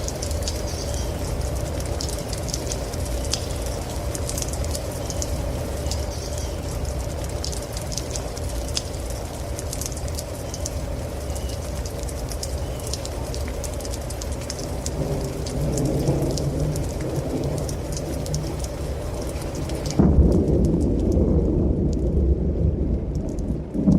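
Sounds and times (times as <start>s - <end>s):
raindrop ticks: 0.0s - 23.9s
steady rain: 0.0s - 23.9s
thunder rumble: 13.1s - 23.9s.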